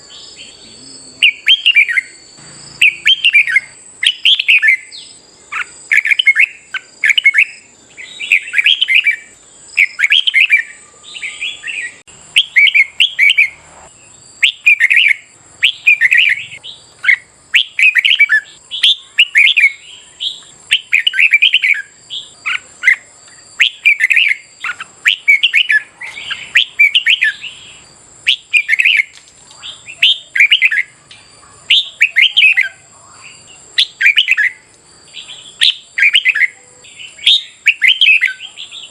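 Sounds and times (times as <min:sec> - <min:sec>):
birds singing whistled phrases: 0:00.0 - 0:38.9
faint high-pitched tone: 0:10.4 - 0:14.0, 0:36.2 - 0:37.4.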